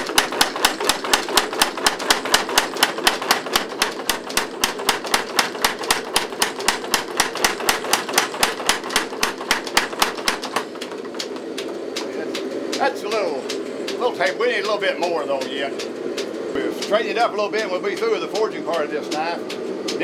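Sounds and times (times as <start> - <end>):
trip hammer pounding metal: 0.0 - 11.3
steady hum: 0.0 - 20.0.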